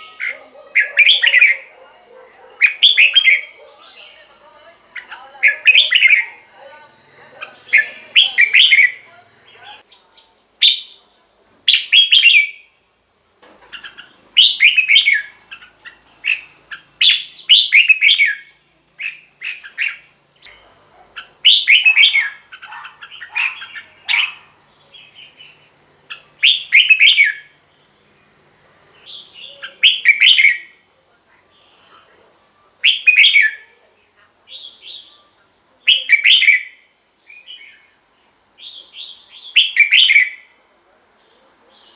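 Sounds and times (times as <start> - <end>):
bird warbling song: 0.0 - 11.0, 13.6 - 27.6, 28.8 - 30.8, 32.8 - 33.6, 34.5 - 37.9, 38.6 - 40.5
soft bird chirps: 13.5 - 27.6, 28.2 - 41.9.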